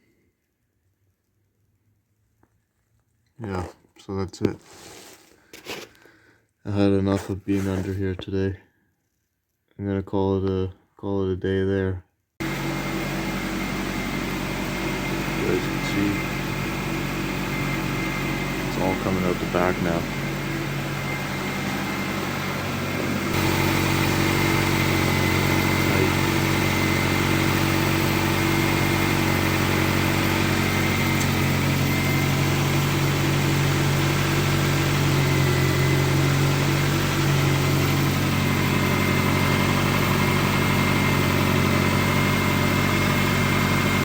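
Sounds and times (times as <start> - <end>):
car engine idling: 12.4 - 44.0.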